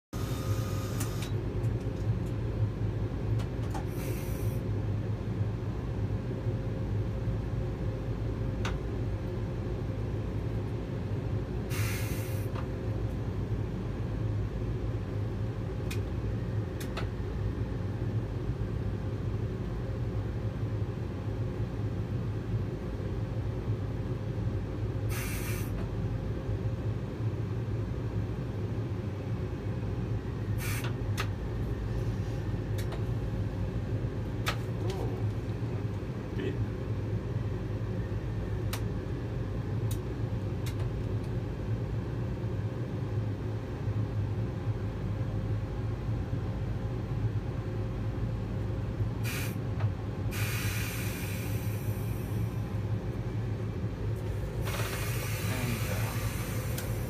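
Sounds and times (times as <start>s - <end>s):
train rumbling with hum: 0.2s - 57.0s
short hisses: 11.7s - 12.5s, 25.1s - 25.7s, 30.6s - 30.9s, 49.3s - 49.6s, 50.3s - 52.3s, 54.6s - 57.0s.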